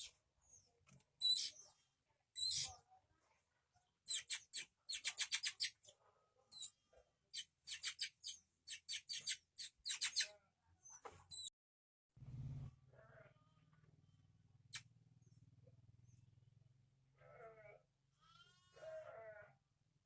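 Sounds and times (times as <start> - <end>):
bird chicks squeaky begging calls: 1.2 - 1.6, 2.4 - 2.8, 7.4 - 10.3.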